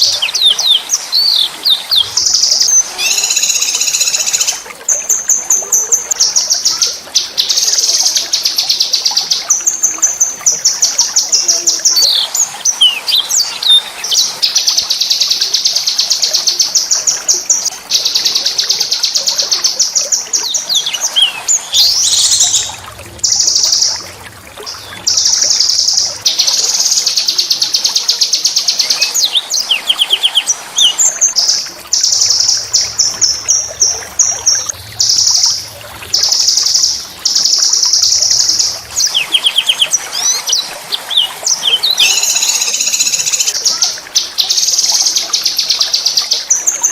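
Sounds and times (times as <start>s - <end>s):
songbird trilling: 0.0s - 4.6s, 20.4s - 23.9s, 36.3s - 43.6s
bird sweeping chirps: 1.2s - 4.6s, 41.7s - 43.5s.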